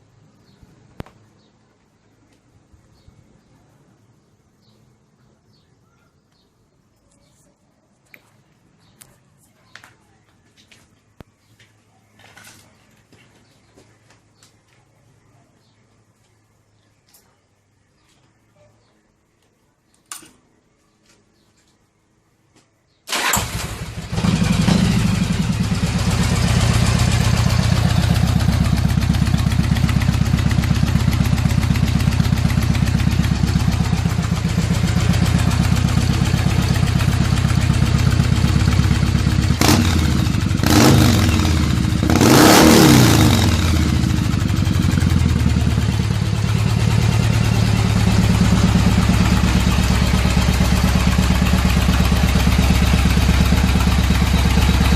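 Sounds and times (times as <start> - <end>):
motorcycle engine idling and revving: 23.1 - 54.9.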